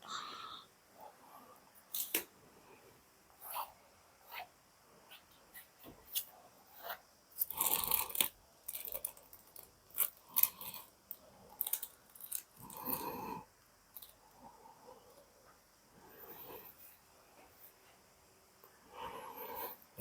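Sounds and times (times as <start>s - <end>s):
handling clicks and crinkling: 7.4s - 12.6s.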